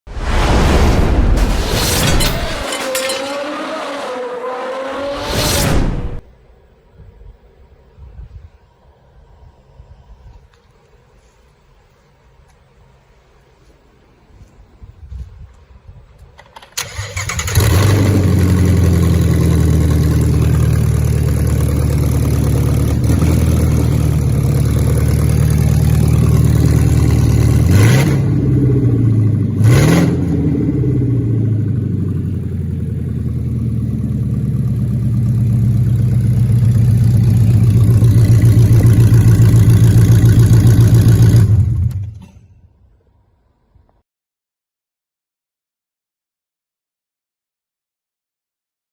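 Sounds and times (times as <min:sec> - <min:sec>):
car engine running and revving: 0:03.2 - 0:06.2, 0:17.6 - 0:42.0.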